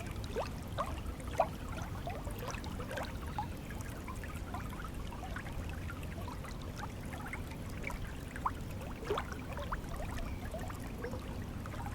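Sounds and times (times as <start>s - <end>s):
stream water bubbling and trickling: 0.0s - 11.9s.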